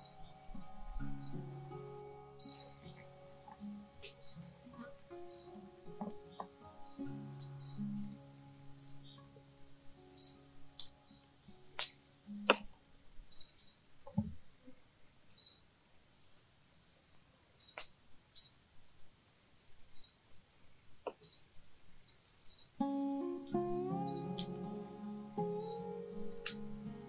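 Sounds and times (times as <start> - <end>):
held music notes: 0.0 - 12.5, 22.8 - 27.0
small bird chirping: 0.0 - 12.7, 13.3 - 13.9, 15.2 - 16.2, 17.1 - 19.2, 19.9 - 20.3, 20.9 - 22.8, 24.1 - 26.8.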